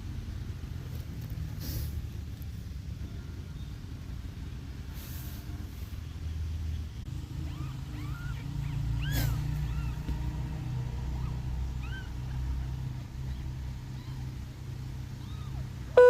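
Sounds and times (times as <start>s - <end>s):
kittens mewing: 7.1s - 16.0s.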